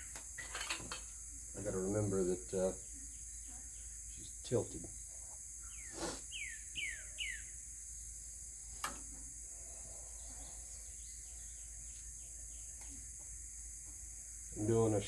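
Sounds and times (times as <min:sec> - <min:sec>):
insects droning: 0:00.0 - 0:15.0
songbird whistling: 0:05.6 - 0:07.5.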